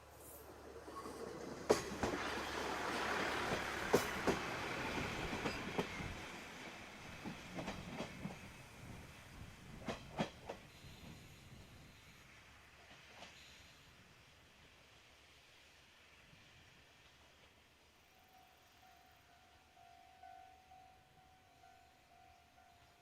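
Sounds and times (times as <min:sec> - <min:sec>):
diesel railcar running past: 0:00.0 - 0:23.0
wheels clicking over rail joints: 0:00.8 - 0:06.3, 0:07.1 - 0:08.6.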